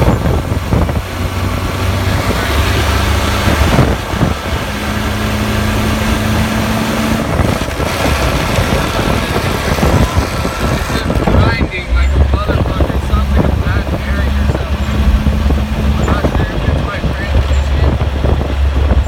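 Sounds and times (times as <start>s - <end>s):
vehicle road and drivetrain noise: 0.0s - 19.0s
steady tone: 11.2s - 18.0s.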